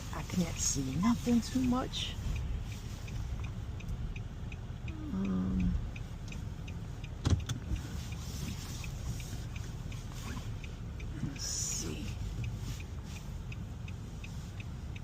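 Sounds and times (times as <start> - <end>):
car interior rumble: 0.0 - 15.0
turn signal ticking: 0.0 - 15.0.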